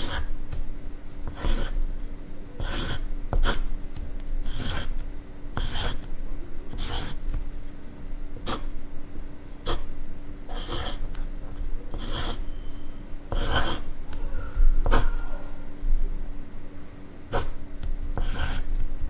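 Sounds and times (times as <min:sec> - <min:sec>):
pencil scratching on paper: 0:00.0 - 0:00.3, 0:01.1 - 0:01.8, 0:02.6 - 0:05.0, 0:05.6 - 0:06.1, 0:06.7 - 0:07.4, 0:08.4 - 0:08.7, 0:09.6 - 0:09.9, 0:10.5 - 0:12.5, 0:13.3 - 0:13.9, 0:14.8 - 0:15.2, 0:17.3 - 0:18.8.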